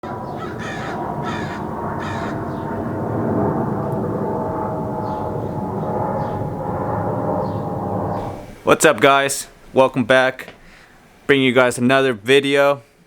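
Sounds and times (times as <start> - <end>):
background rush of noise: 0.0 - 13.0
faint high bird calls: 0.1 - 2.7
crow cawing: 0.2 - 2.7.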